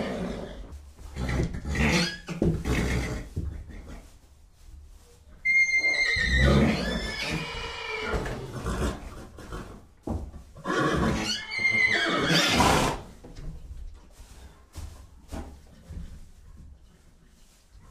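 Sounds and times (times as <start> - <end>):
horse neighing: 5.4 - 9.0, 10.6 - 13.0.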